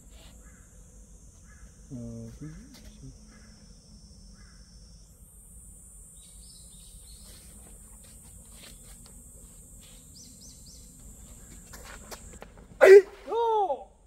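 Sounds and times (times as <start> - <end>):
steady high-pitched hiss: 0.0 - 14.0
small birds chirping: 6.1 - 7.7, 9.9 - 11.7.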